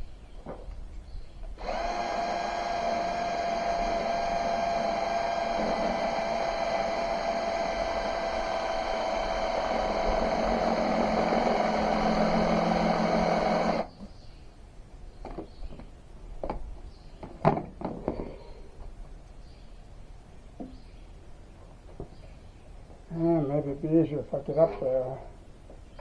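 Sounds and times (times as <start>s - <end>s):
electric drill running: 1.6s - 13.9s.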